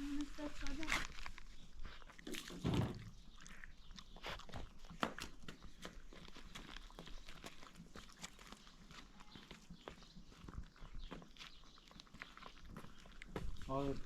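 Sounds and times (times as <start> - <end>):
animal footsteps: 0.0 - 14.0
low thud: 2.6 - 3.1.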